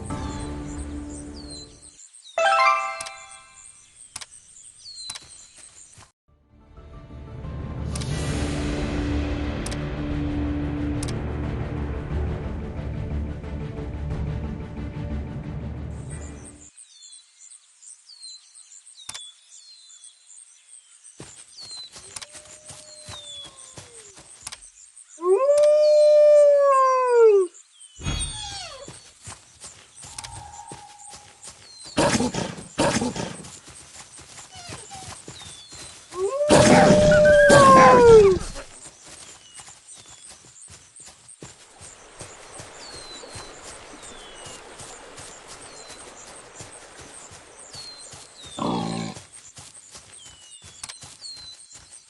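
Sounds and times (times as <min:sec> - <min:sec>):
music: 0:00.0 - 0:01.8, 0:02.4 - 0:03.5, 0:06.3 - 0:16.7
very high bird chirping: 0:00.0 - 0:05.7
wolf howling: 0:25.2 - 0:27.5, 0:36.2 - 0:38.7.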